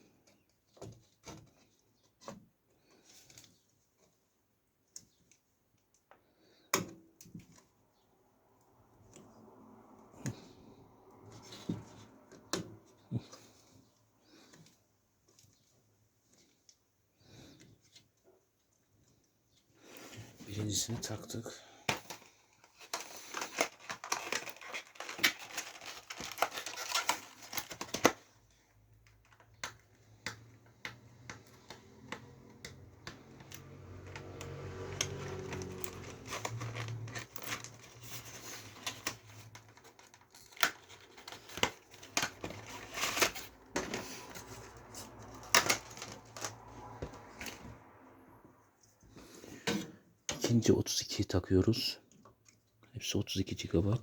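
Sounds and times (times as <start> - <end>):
crinkling: 10.2 - 48.1.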